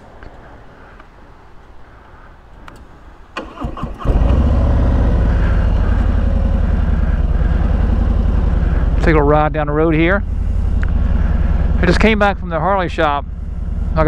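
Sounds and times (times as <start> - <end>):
motorcycle engine starting: 3.4 - 14.0
motorcycle engine idling: 4.1 - 14.0.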